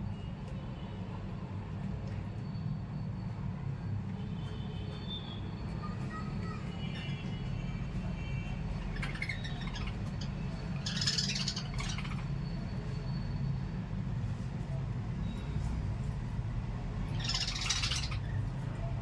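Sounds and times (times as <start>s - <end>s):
parrots squawking: 8.8s - 12.6s, 17.0s - 18.5s.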